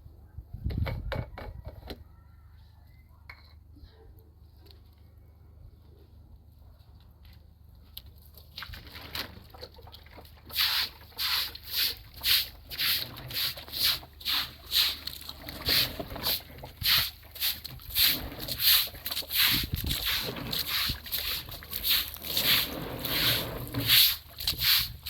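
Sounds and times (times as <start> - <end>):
water sloshing: 8.4 - 25.0.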